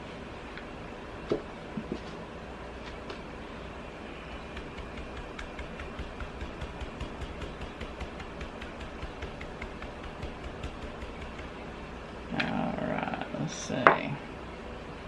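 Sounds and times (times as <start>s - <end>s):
steady low hum: 0.0s - 15.0s
brush tapping on wood: 4.4s - 11.6s.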